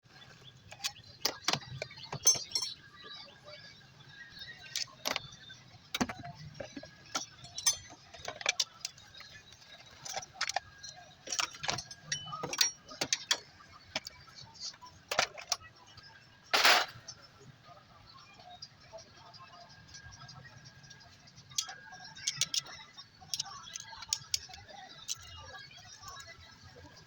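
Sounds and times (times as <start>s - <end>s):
metal tools clinking: 0.7s - 3.2s, 4.3s - 14.3s, 16.6s - 17.1s, 21.6s - 25.4s.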